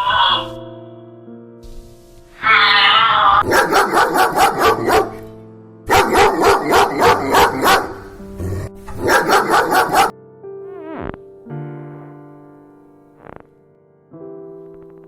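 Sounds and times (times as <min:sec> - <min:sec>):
background music: 0:00.0 - 0:15.0
dog barking rapidly: 0:03.4 - 0:05.3, 0:05.9 - 0:10.1.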